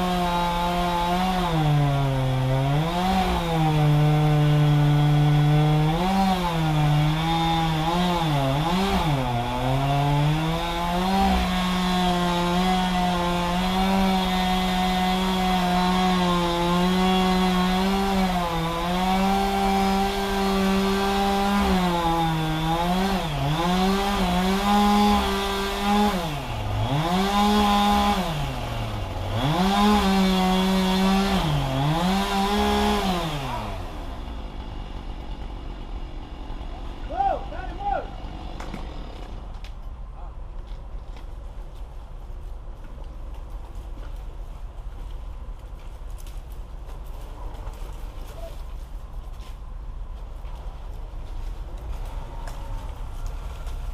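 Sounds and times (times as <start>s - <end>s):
chainsaw cutting wood: 0.0s - 39.8s.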